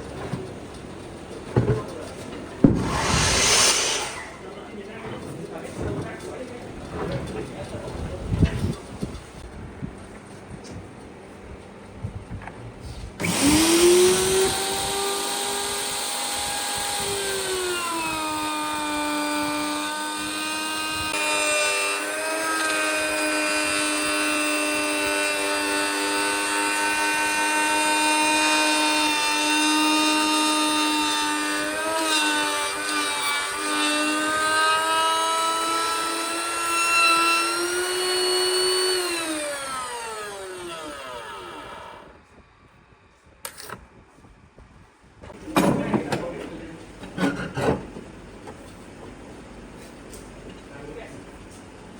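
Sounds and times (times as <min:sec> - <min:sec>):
electric power tool motor whine: 0:13.2 - 0:42.2.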